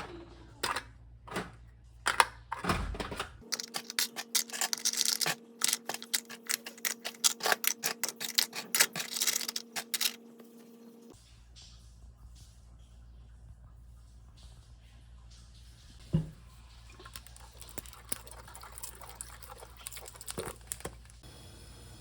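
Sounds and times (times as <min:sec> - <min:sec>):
small hard objects clicking: 0:03.4 - 0:10.2, 0:17.1 - 0:21.2.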